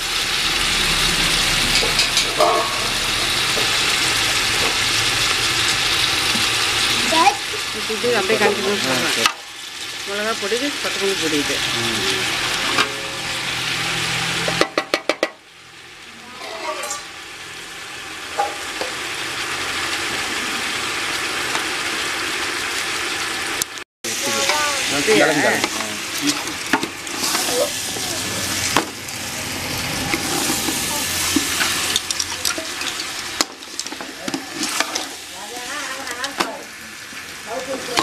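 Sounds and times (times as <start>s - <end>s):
chicken sizzling in oil: 0.0s - 38.0s
metal ladle scraping and knocking pot: 1.6s - 3.8s, 16.4s - 17.1s.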